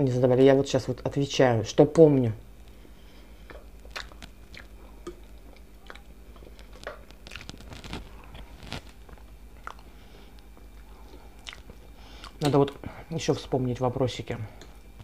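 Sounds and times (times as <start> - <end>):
chewing food: 3.4 - 12.9
wet mouth clicks and smacks: 3.5 - 7.8, 10.5 - 12.8.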